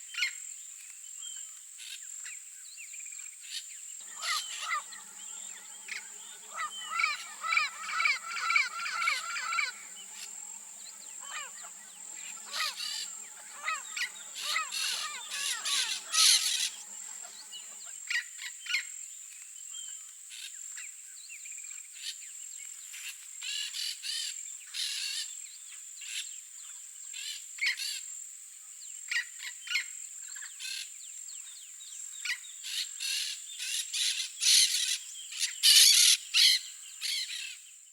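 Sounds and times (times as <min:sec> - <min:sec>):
parrots calling: 0:04.0 - 0:17.9
steady high-pitched buzz: 0:04.0 - 0:18.0.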